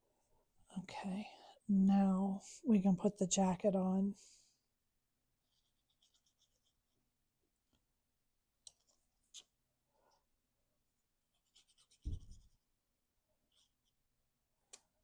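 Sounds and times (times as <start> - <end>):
soft thump on work surface: 12.0 - 12.4.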